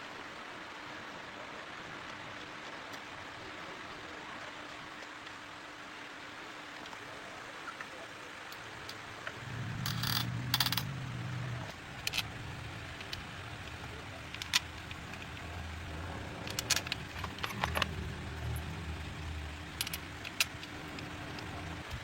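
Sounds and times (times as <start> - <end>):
low rumble: 9.3 - 20.1.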